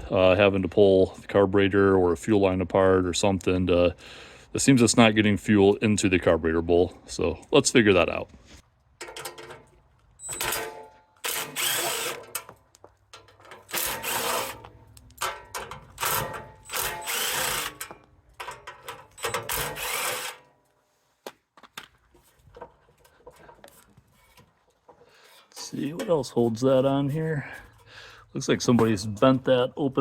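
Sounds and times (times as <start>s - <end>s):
handling of metal panel: 9.0s - 10.9s, 13.2s - 16.6s
cordless drill motor whine: 11.3s - 12.2s, 13.7s - 14.6s, 16.1s - 17.8s, 19.4s - 20.4s.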